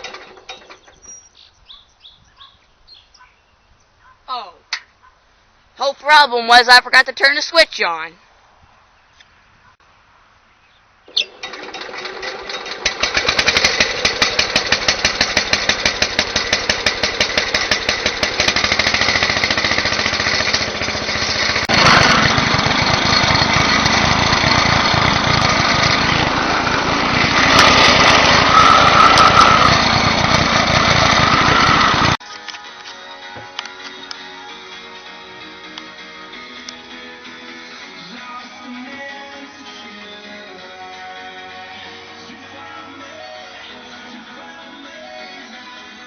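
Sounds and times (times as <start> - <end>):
small gasoline engine running: 11.2 - 32.2.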